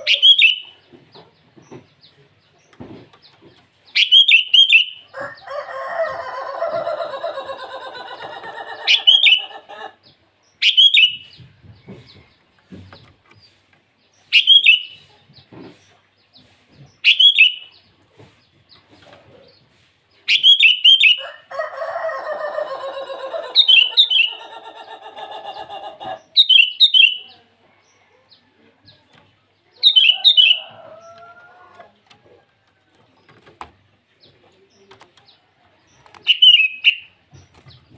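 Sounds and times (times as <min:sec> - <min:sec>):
bulbul call phrases: 0:00.0 - 0:00.8, 0:22.6 - 0:27.6, 0:29.6 - 0:30.7.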